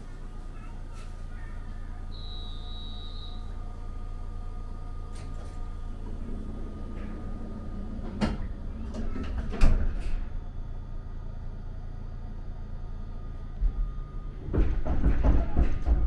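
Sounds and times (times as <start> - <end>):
train running rumble: 0.0 - 16.0
sharp knocks and clacks: 14.5 - 16.0.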